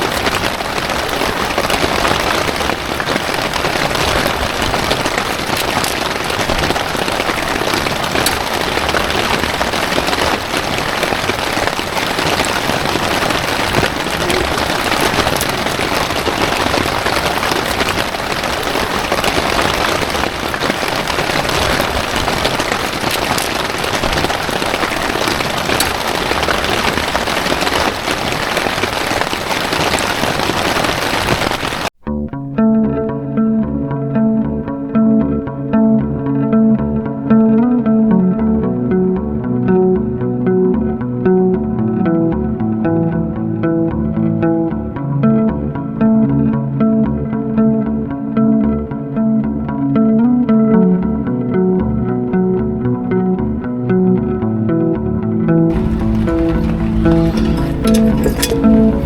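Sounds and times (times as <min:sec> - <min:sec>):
heavy rain pouring: 0:00.0 - 0:32.0, 0:55.7 - 0:59.0.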